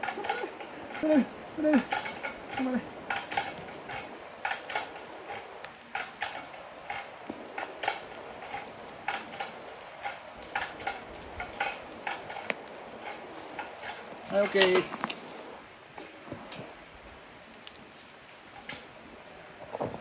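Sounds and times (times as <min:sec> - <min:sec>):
metallic ratchet clicking: 0:00.0 - 0:14.8.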